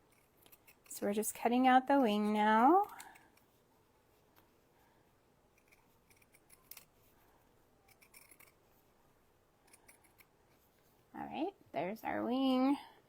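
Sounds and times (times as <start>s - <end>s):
scissors cutting fabric: 0.0s - 1.0s, 5.5s - 7.0s, 7.8s - 8.6s, 9.6s - 10.3s.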